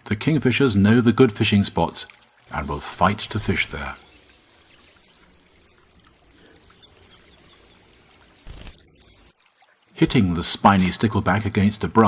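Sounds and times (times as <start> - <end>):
kingfisher calling: 2.5 - 9.0.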